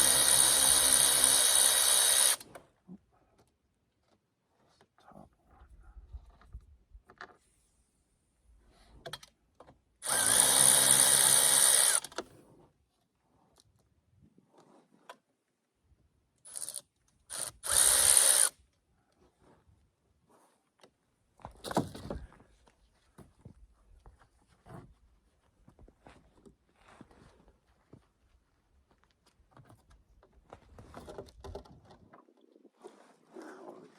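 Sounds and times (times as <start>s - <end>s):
electric ratchet running: 0.0s - 2.4s, 10.0s - 12.2s, 16.5s - 18.5s.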